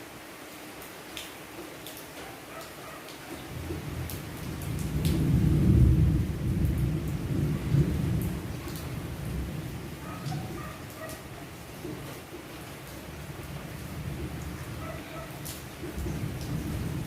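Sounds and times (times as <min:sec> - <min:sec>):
rain: 0:00.0 - 0:17.0
dripping water ticks: 0:00.8 - 0:05.2, 0:08.1 - 0:09.4, 0:10.0 - 0:17.0
rolling thunder: 0:03.5 - 0:11.0, 0:15.7 - 0:17.0.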